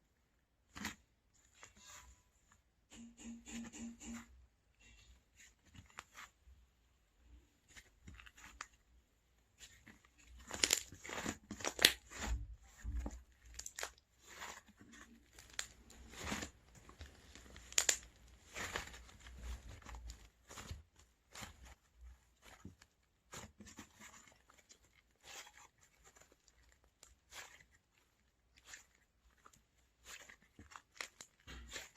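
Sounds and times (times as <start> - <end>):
slime crackling and popping: 10.2 - 12.8, 13.4 - 21.7.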